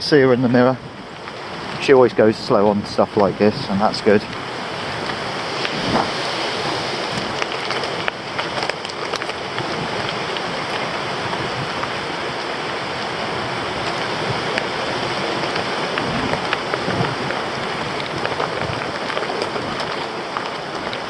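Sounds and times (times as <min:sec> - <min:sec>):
bike tyres on rough track: 0:00.0 - 0:21.0
wind on microphone: 0:00.0 - 0:21.0
ticks and rattles: 0:07.1 - 0:12.5, 0:13.8 - 0:21.0.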